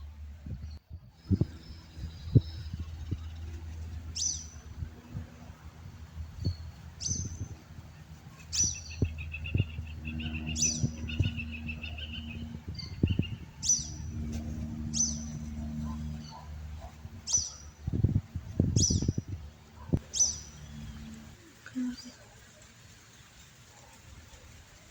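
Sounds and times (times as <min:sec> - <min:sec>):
low steady hum: 0:00.0 - 0:23.0
bird chirping high: 0:06.4 - 0:07.6, 0:08.3 - 0:21.1
bird trilling: 0:08.4 - 0:14.2, 0:14.8 - 0:17.8, 0:19.8 - 0:21.0.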